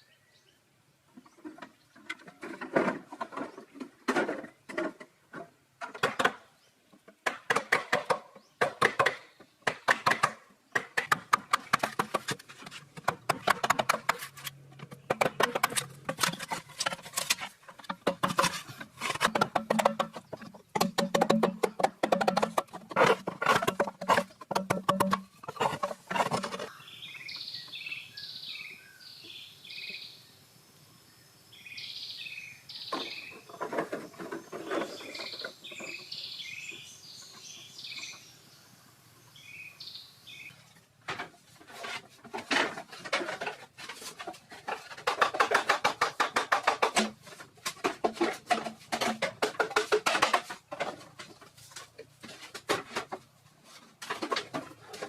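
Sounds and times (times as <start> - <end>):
scraping and knocking: 7.2 - 26.7, 33.0 - 36.0, 41.1 - 55.0
small birds chirping: 19.0 - 40.8.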